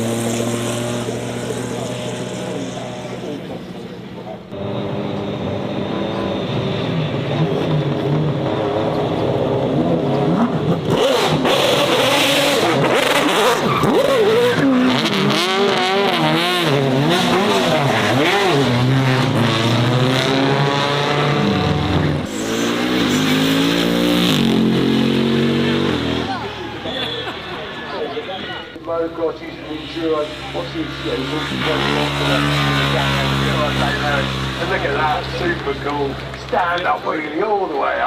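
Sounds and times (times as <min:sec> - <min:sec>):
racing car engine revving: 0:00.0 - 0:38.0.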